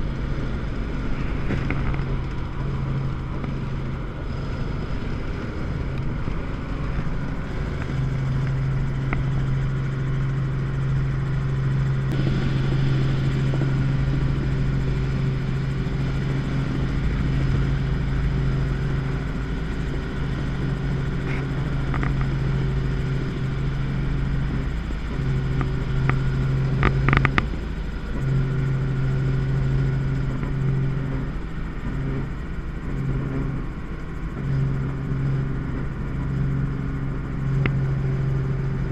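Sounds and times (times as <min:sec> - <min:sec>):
helicopter engine and rotor drone: 0:00.0 - 0:38.9.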